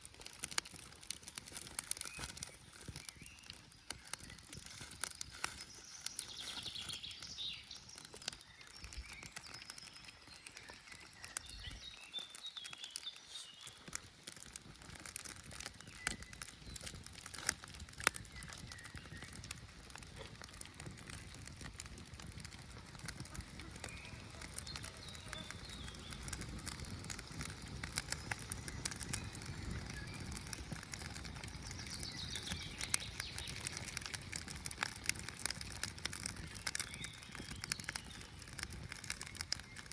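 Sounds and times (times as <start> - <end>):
campfire crackling: 0.0 - 39.9
birds chirping: 1.5 - 14.0, 22.5 - 39.9.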